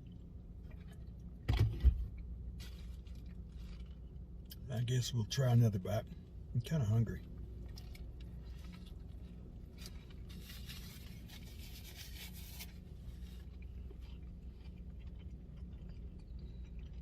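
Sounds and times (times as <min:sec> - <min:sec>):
steady low hum: 0:00.0 - 0:17.0
paper wrapper rustling: 0:09.7 - 0:13.3.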